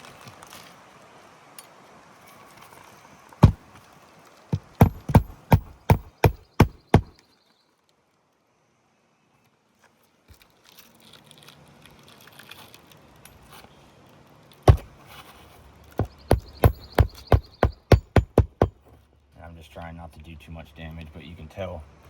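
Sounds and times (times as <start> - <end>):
hammer striking nail: 4.6 - 7.1, 14.7 - 14.9, 16.0 - 19.0.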